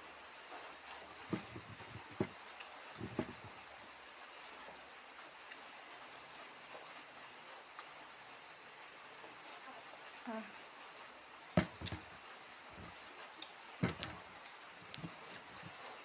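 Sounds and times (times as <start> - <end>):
dull knocks: 1.3 - 2.4, 3.0 - 3.5, 11.6 - 12.1, 13.8 - 14.3, 14.9 - 15.7.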